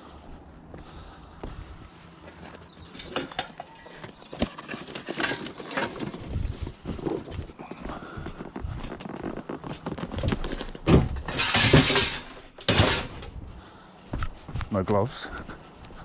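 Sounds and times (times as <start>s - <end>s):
metal bicycle knocks and rattles: 10.8s - 13.4s.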